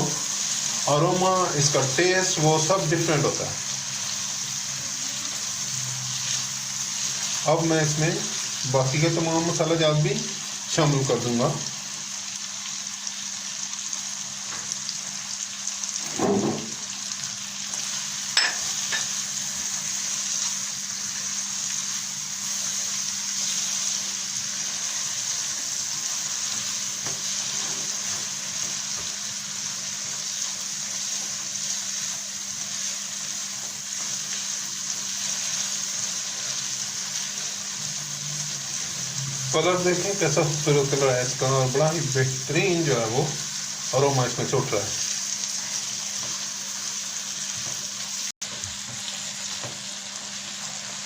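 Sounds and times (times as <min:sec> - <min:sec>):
chicken sizzling in a pot: 0:00.0 - 0:51.0
short thump: 0:16.1 - 0:16.8.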